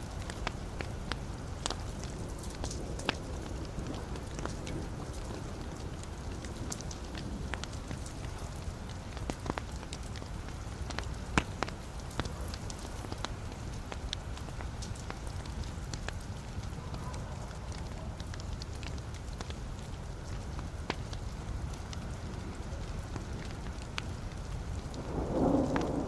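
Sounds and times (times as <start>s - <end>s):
logs crackling in a fireplace: 0.0s - 26.0s.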